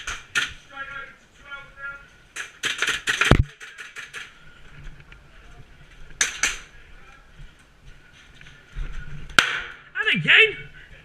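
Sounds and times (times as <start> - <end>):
airsoft guns firing: 2.4 - 3.5, 9.4 - 9.8.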